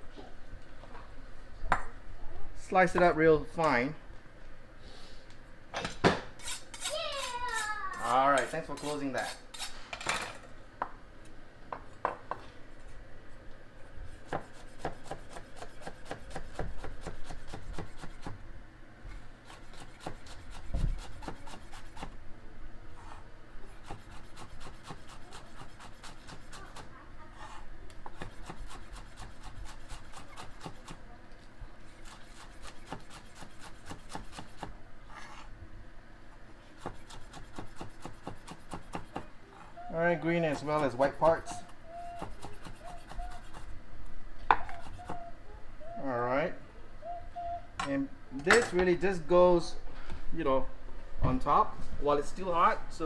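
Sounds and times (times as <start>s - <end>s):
knife chopping on cutting board: 14.1s - 18.4s, 19.4s - 22.1s, 23.8s - 26.9s, 28.1s - 31.0s, 32.0s - 34.7s, 36.8s - 39.3s, 42.1s - 43.7s.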